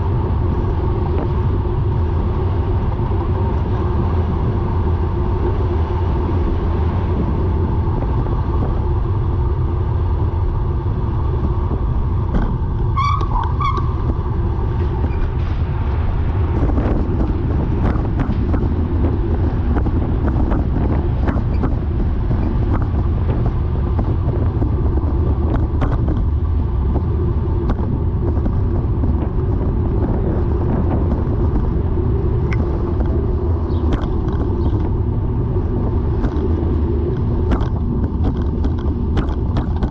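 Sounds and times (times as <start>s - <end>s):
wind and tyre noise: 0.0s - 39.9s.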